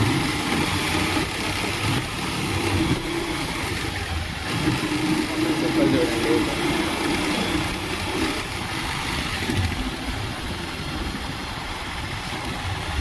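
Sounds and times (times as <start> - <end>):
motorcycle engine running: 0.0 - 13.0
steady rush of noise: 0.0 - 13.0.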